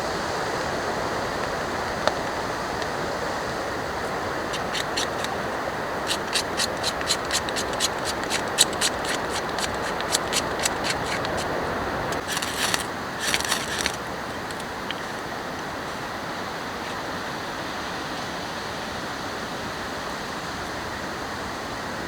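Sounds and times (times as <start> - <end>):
sharp ticks: 4.0 - 11.5
short scraping sounds: 4.0 - 15.2.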